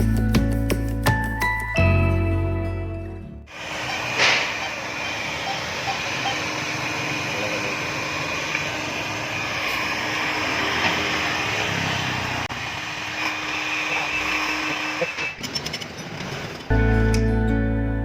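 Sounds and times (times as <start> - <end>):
diesel engine running: 3.5 - 17.2.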